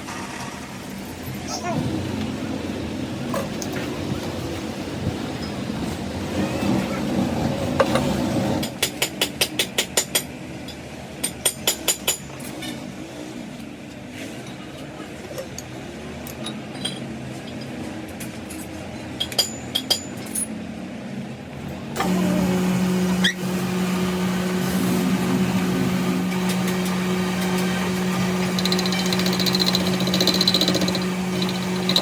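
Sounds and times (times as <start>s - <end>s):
machine hum: 21.9s - 32.0s.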